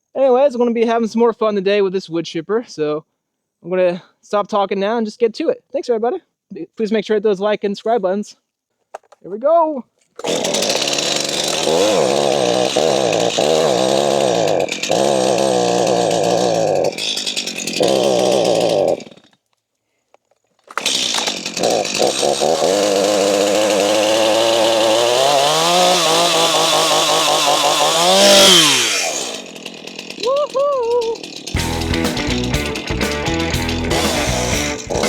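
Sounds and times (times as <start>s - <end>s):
chainsaw revving: 10.2s - 19.4s, 20.6s - 35.0s.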